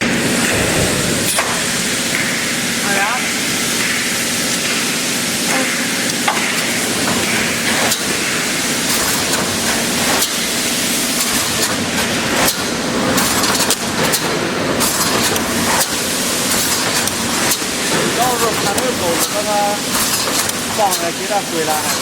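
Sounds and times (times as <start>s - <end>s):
welding machine hissing: 0.0s - 22.0s.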